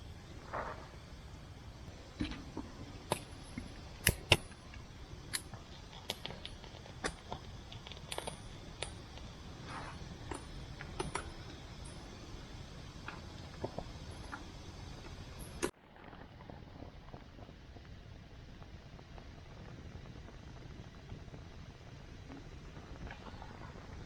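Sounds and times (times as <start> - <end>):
metal camp gear clinking: 3.0 - 12.2.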